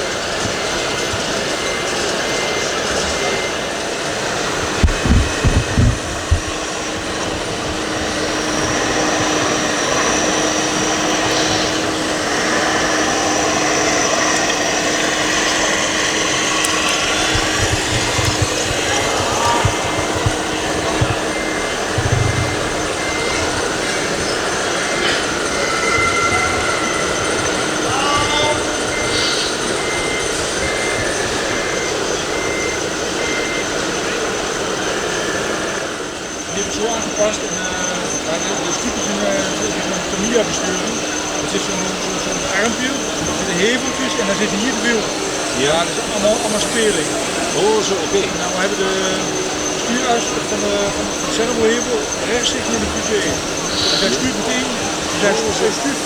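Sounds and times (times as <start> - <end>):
constant background din: 0.0 - 56.0
motor whirring: 0.0 - 56.0
reversing alarm beeping: 0.0 - 56.0
low thumps: 4.7 - 13.4, 15.2 - 31.2.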